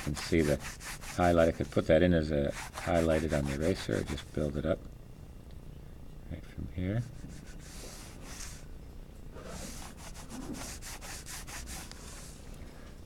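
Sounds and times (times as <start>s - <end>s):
pencil rubbing on paper: 0.0s - 1.7s, 2.5s - 4.3s, 7.1s - 8.6s, 9.4s - 12.4s.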